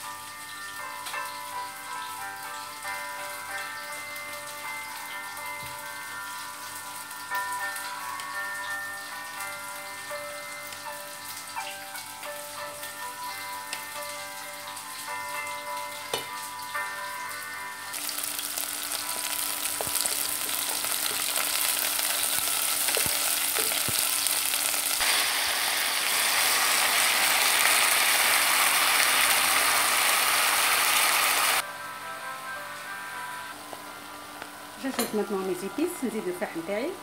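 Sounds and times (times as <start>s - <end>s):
onions sizzling in oil: 0.0s - 31.6s
faint background music: 31.6s - 37.0s.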